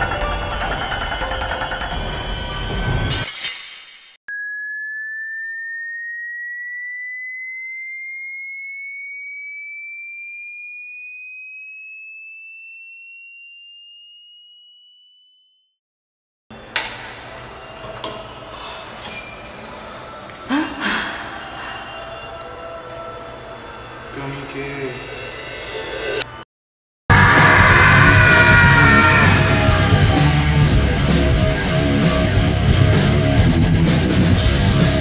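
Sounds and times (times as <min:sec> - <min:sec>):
rising electronic tone: 0:04.3 - 0:08.9.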